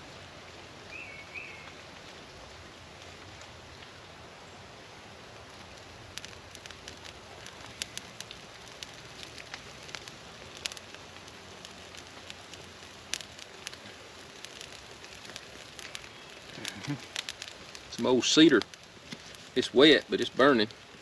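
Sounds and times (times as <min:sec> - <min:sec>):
campfire crackling: 0:00.0 - 0:21.0
steady fire hiss: 0:00.0 - 0:21.0
sharp pops of fire: 0:04.8 - 0:21.0.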